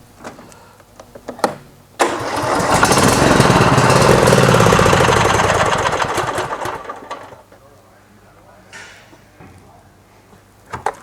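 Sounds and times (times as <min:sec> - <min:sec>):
lawn tractor engine running: 0:02.0 - 0:07.6.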